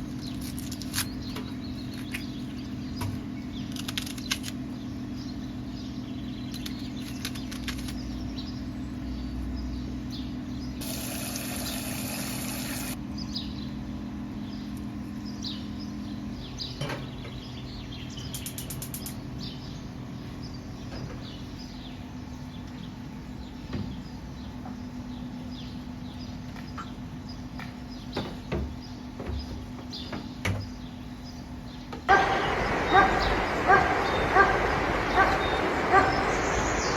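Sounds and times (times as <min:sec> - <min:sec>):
small birds chirping: 0:00.0 - 0:36.9
steady low hum: 0:30.9 - 0:36.9.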